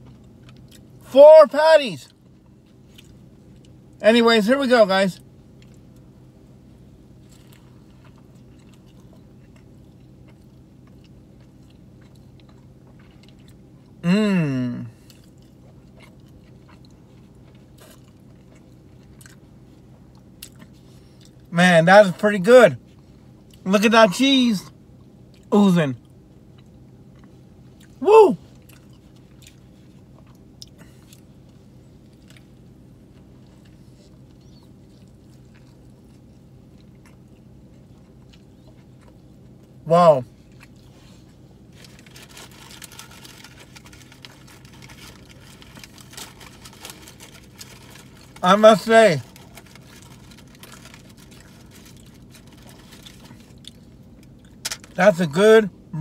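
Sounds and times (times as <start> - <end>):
steady low hum: 0.0 - 56.0
man chewing: 7.2 - 21.5, 25.0 - 39.8, 49.2 - 54.7
man saying mmm: 14.0 - 15.0, 28.0 - 28.4.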